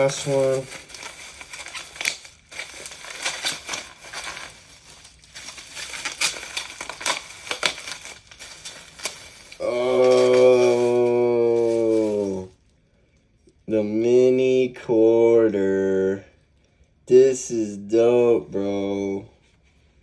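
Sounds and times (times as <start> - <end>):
packaging crinkling and rustling: 0.0 - 12.5.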